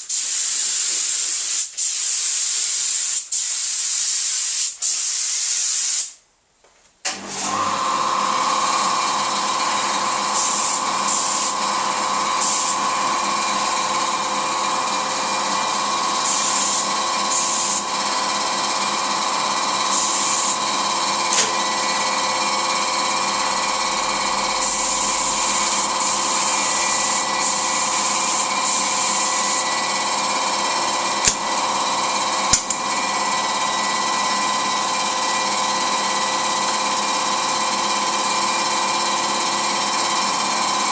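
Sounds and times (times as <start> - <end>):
spray gun hissing: 0.0 - 6.2, 10.3 - 11.6, 12.4 - 13.2, 16.2 - 17.9, 19.9 - 20.7, 24.4 - 30.2
electric motor humming: 7.4 - 34.3.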